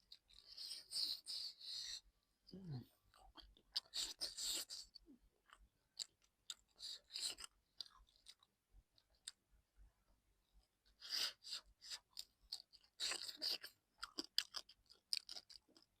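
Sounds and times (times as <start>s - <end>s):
person chewing crunchily: 3.1s - 9.4s, 11.0s - 16.0s.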